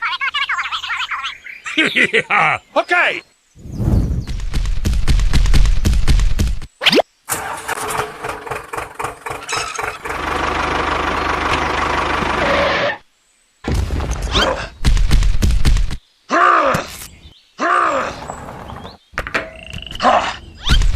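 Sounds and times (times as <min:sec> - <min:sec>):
engine running: 0:07.3 - 0:13.0
rapid engine knocking: 0:07.8 - 0:12.4.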